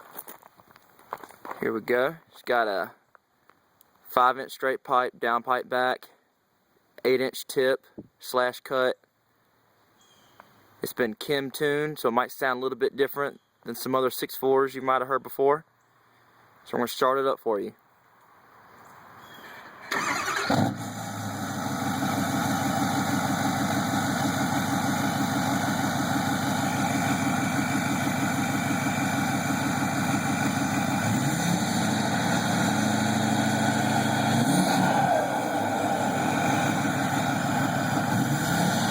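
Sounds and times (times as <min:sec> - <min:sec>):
diesel engine cranking and starting: 0:19.4 - 0:38.9
diesel truck engine idling: 0:19.9 - 0:38.9.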